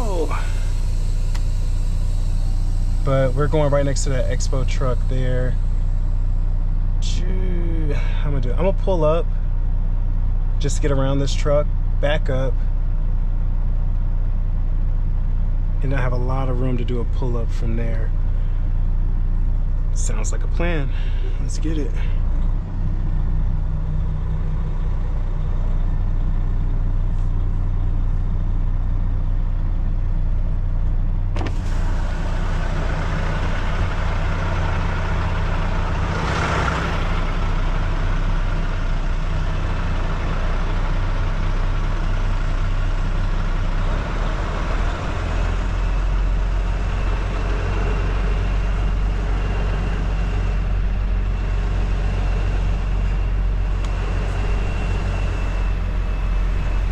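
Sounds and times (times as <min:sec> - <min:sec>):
truck diesel engine running: 0:00.0 - 0:56.9
short air hiss: 0:00.2 - 0:04.0.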